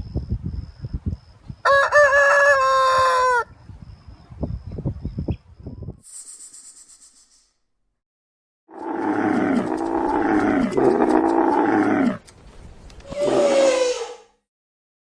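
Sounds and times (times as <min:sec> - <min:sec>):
rooster crowing: 0:01.6 - 0:03.5.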